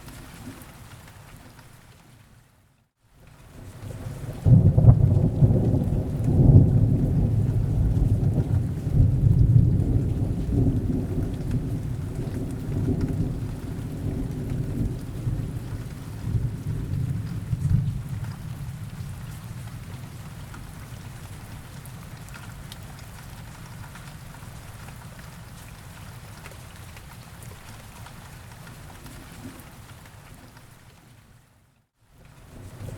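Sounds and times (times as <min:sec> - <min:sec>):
steady rain: 0:00.0 - 0:32.9
thunder rumbling: 0:04.4 - 0:20.2.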